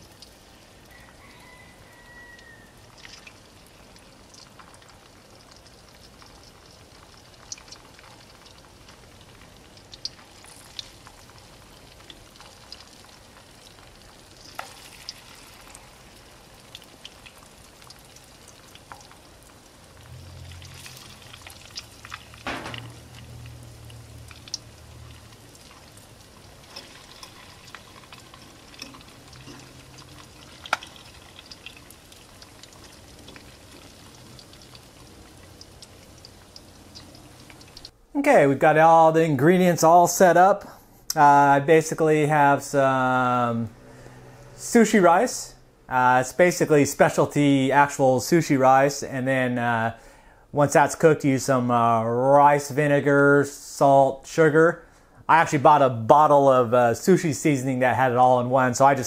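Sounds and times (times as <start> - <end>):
vegetables frying in hot oil: 0.0 - 38.0.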